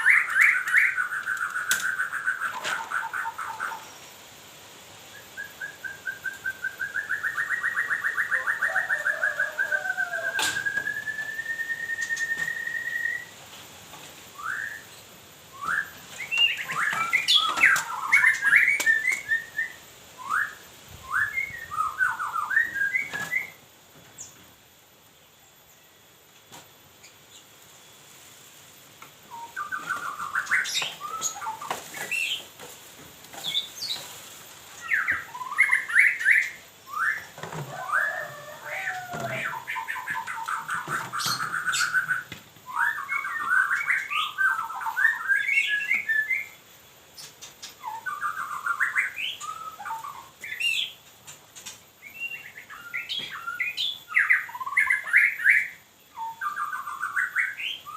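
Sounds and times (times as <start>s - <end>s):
songbird trilling and chirping: 0.0s - 4.1s, 14.4s - 23.6s, 34.8s - 46.6s, 47.2s - 57.9s.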